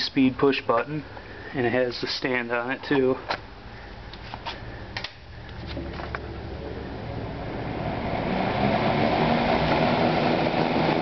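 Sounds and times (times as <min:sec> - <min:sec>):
box fan motor humming: 0:03.4 - 0:11.0.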